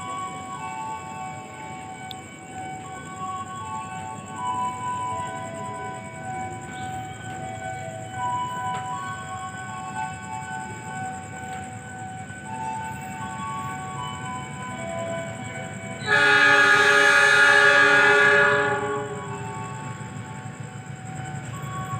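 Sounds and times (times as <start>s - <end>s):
electronic warning siren: 0.0s - 21.9s.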